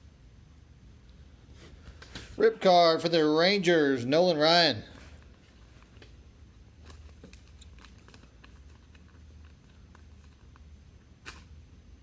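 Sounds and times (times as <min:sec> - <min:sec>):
low steady hum: 0:00.0 - 0:12.0
trading cards rustling: 0:06.8 - 0:10.7.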